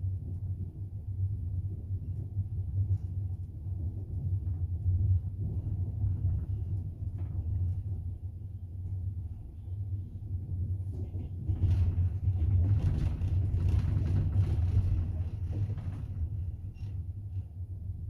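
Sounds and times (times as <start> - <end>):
train rumble inside carriage: 0.0 - 18.0
wheel and carriage clatter: 11.3 - 16.4.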